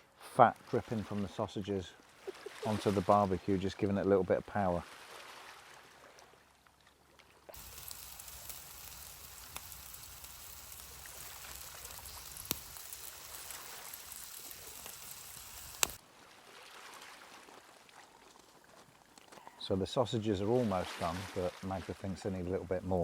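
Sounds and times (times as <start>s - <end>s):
fat crackling on hot coals: 7.6s - 16.0s
sausages sizzling on a barbecue: 7.6s - 16.0s
sharp pops: 7.6s - 16.0s.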